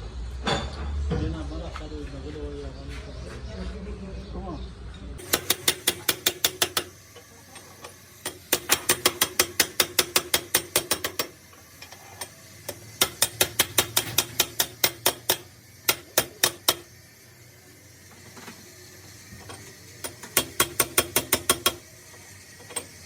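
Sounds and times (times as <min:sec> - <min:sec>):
ratchet wrench clicking: 0:05.2 - 0:17.2, 0:18.1 - 0:23.0.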